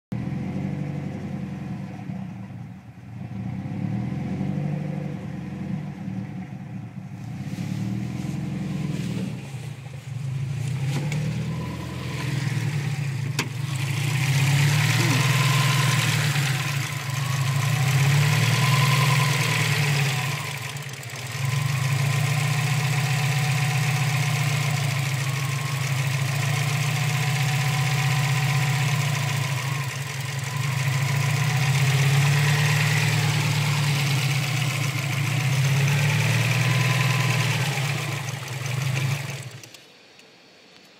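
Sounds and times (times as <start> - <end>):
car engine idling roughly: 12.5 - 39.7.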